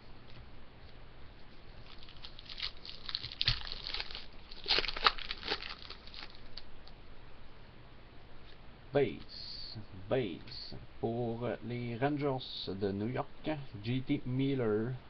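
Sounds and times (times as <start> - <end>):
trading cards rustling: 1.8 - 6.6.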